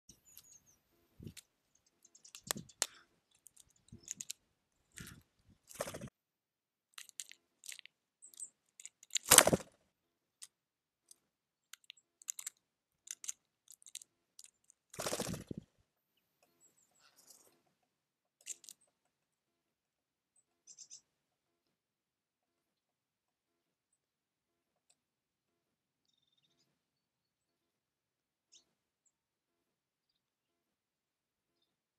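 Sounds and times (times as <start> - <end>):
birds pecking and cracking seeds: 0.1 - 6.1, 6.9 - 15.7, 16.4 - 19.4.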